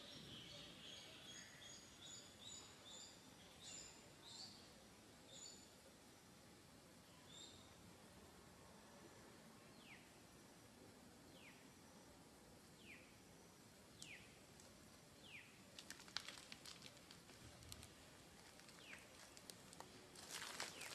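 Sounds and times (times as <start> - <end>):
dry leaves rustling: 15.7 - 20.9.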